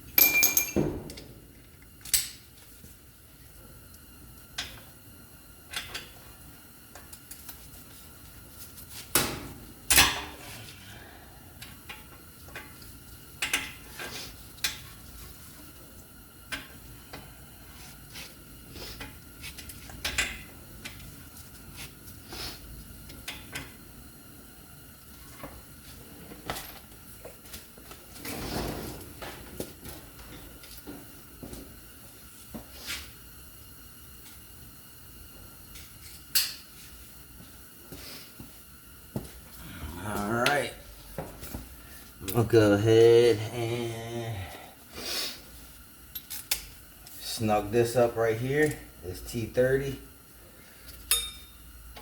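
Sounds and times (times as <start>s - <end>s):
metal tools clinking and clanking: 0.2s - 1.0s.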